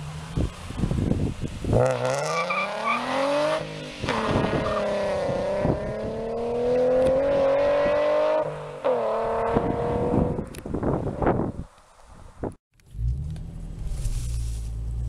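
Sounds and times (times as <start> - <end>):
car engine accelerating hard: 0.0 - 10.4.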